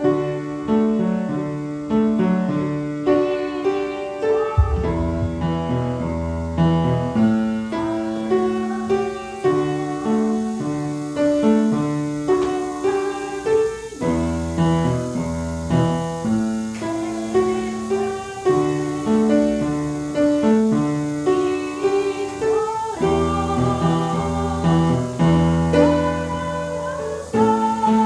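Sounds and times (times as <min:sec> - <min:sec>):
piano playing slow chords: 0:00.0 - 0:28.0
deep bass line: 0:04.6 - 0:05.9.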